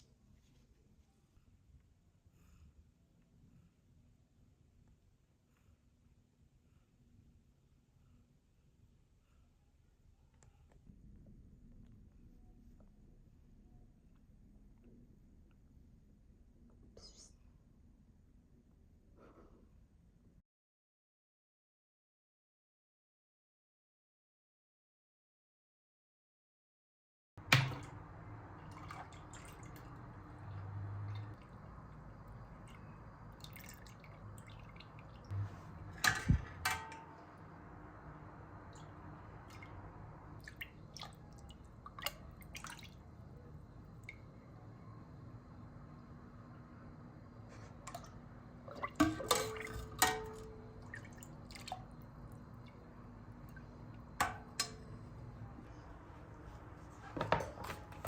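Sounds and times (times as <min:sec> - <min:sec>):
low steady background: 0:27.4 - 0:58.0.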